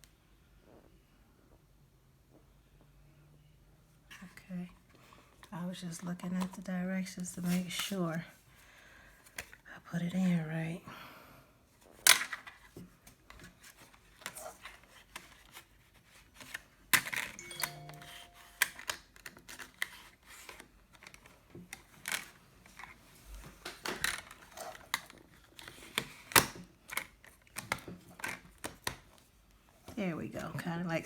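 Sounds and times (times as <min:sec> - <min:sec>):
short steady tone: 0:17.4 - 0:18.7.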